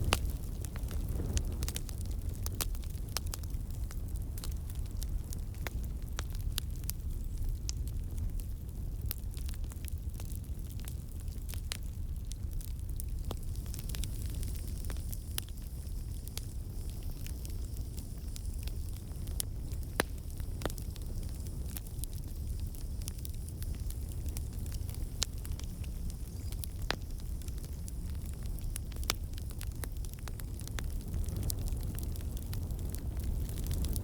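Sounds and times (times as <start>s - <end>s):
campfire crackling: 0.0s - 34.0s.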